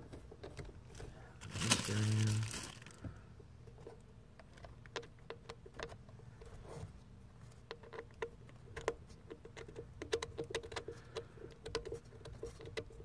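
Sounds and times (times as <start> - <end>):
small hardware clicking and tapping: 7.6 - 13.0.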